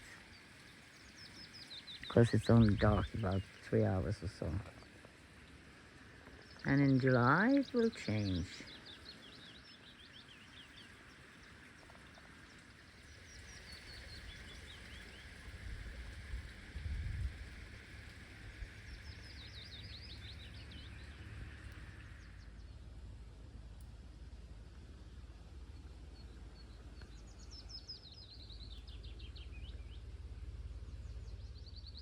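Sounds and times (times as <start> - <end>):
songbird chirping: 0.0 - 5.6, 6.2 - 15.4, 24.8 - 32.0
faint steady hiss: 0.0 - 31.6.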